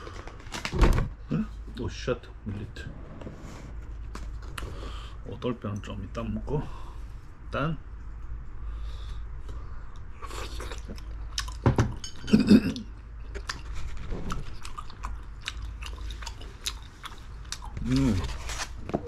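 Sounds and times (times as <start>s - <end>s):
person chewing food: 9.4s - 11.6s, 12.8s - 18.8s.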